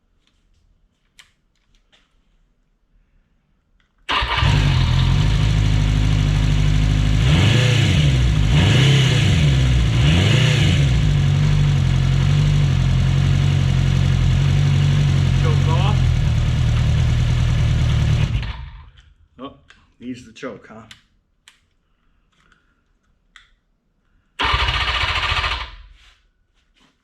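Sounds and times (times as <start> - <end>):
motorcycle engine revving: 4.1 - 18.9, 24.4 - 25.8.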